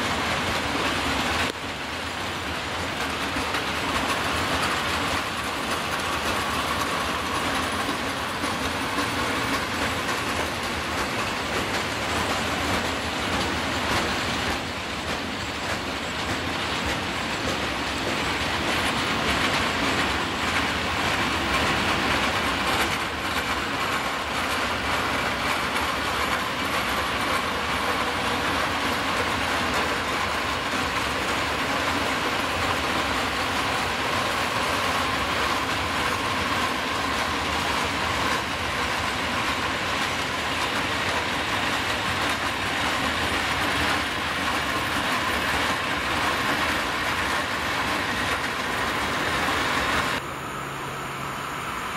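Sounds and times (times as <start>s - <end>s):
wheels clicking over rail joints: 0.0s - 50.2s
freight train rolling past: 0.0s - 51.9s
faint steady whine: 50.2s - 51.9s.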